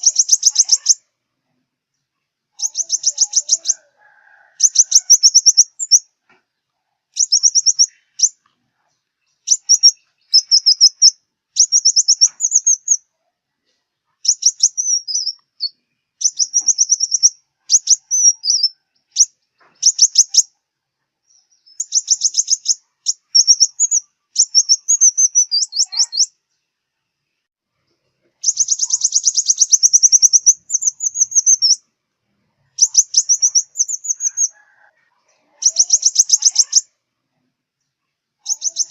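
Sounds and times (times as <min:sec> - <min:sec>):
sunbird trilling song: 0:00.0 - 0:01.1, 0:02.6 - 0:03.9, 0:04.6 - 0:06.1, 0:07.2 - 0:08.4, 0:09.2 - 0:13.1, 0:14.2 - 0:20.6, 0:21.2 - 0:26.4, 0:28.4 - 0:31.8, 0:32.7 - 0:34.6, 0:35.6 - 0:37.0, 0:38.4 - 0:38.9.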